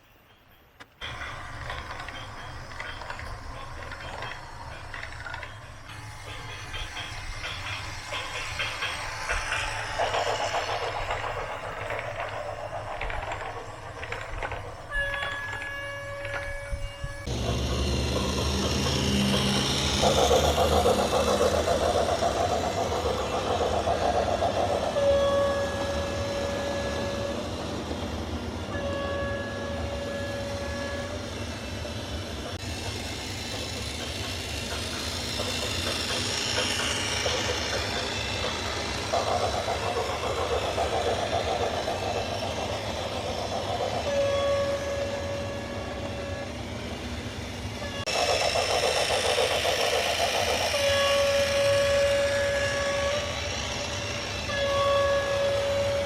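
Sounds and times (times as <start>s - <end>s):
heavy vehicle engine running: 17.2s - 24.6s.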